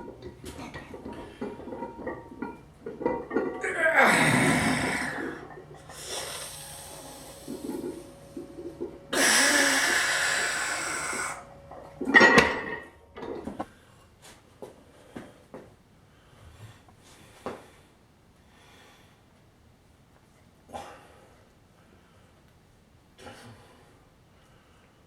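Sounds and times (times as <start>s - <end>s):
man exhaling hard: 3.7s - 7.0s, 9.1s - 11.4s.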